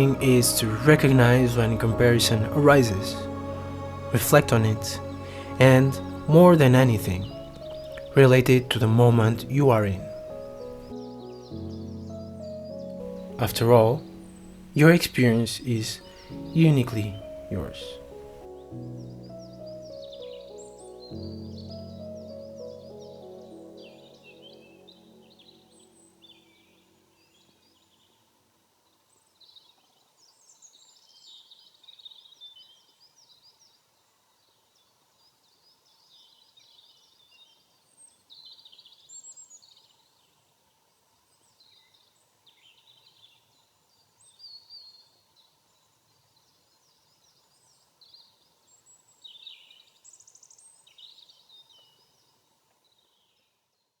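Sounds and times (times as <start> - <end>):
birds chirping and trilling: 0.0 - 28.1.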